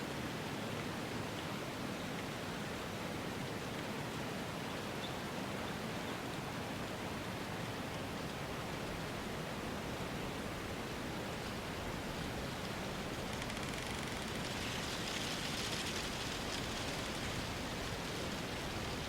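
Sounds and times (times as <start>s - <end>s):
steady rushing noise: 12.4s - 19.0s
faint ticks: 12.6s - 17.4s.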